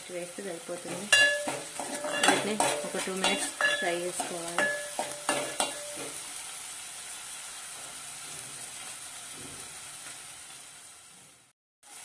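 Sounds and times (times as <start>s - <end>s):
onions sizzling in hot oil: 0.0s - 12.0s
ladle knocking against pan: 1.1s - 3.8s, 4.6s - 6.1s.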